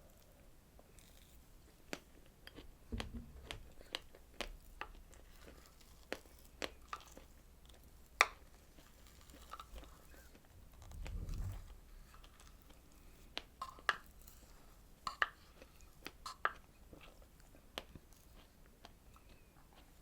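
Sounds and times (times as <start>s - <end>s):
close-miked chewing and biting: 3.4s - 11.3s, 12.2s - 20.0s.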